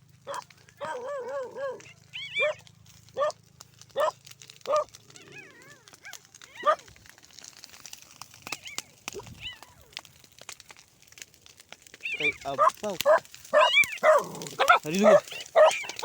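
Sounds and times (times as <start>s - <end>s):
dog barking: 0.2s - 2.6s, 3.2s - 3.4s, 4.0s - 5.0s, 6.0s - 6.8s, 12.2s - 16.0s
dog whining: 0.3s - 2.6s, 3.2s - 3.4s, 4.0s - 6.9s, 12.0s - 16.0s.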